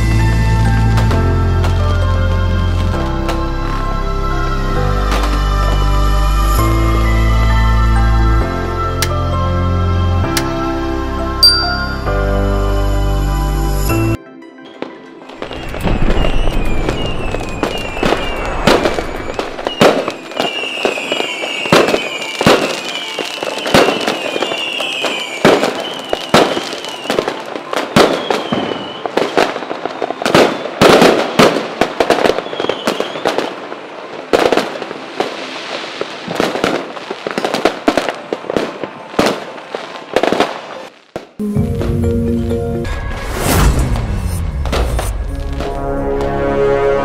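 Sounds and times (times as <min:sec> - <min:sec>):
fireworks bangs and crackles: 0:00.0 - 0:09.4, 0:14.8 - 0:42.2, 0:42.9 - 0:46.6
falling firework whistles: 0:15.4 - 0:39.4, 0:42.9 - 0:45.9.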